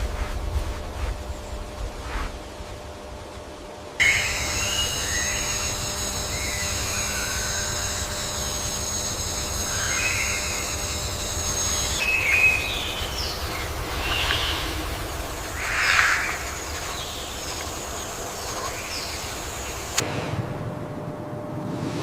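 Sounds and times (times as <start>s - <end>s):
high-pitched insect drone: 4.0s - 20.0s
bird-like chirps: 11.8s - 14.8s.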